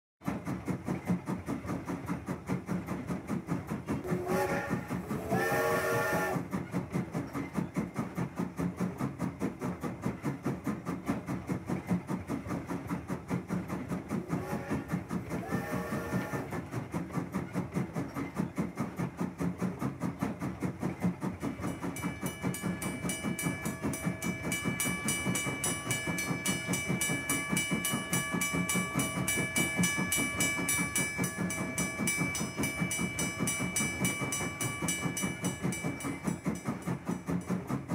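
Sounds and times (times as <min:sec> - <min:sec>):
steam train chuffing: 0:00.2 - 0:37.9
train whistle: 0:04.0 - 0:06.5, 0:14.3 - 0:16.6
high-pitched ringing: 0:21.6 - 0:37.5.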